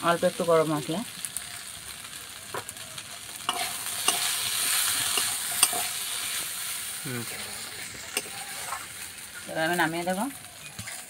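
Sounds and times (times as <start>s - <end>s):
green beans sizzling in a wok: 0.0s - 11.0s
metal spatula scraping a wok: 3.4s - 11.0s.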